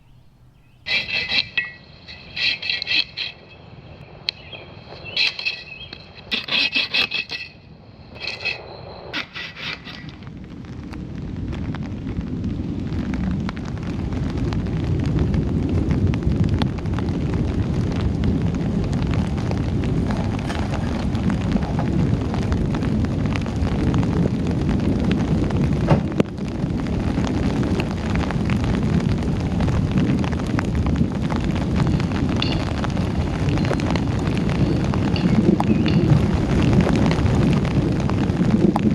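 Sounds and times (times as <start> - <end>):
heavy rain on a tent: 10.2 - 38.9.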